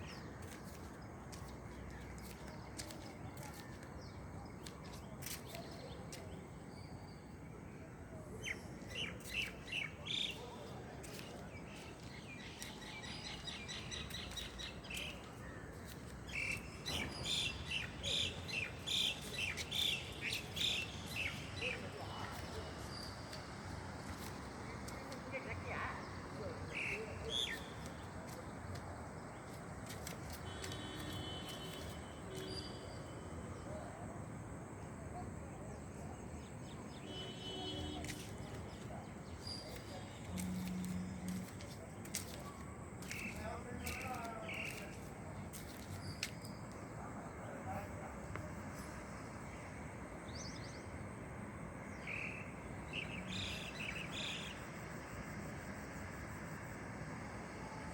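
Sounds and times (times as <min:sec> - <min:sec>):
outdoor background noise: 0:00.0 - 0:57.9
birds chirping: 0:36.5 - 0:49.7.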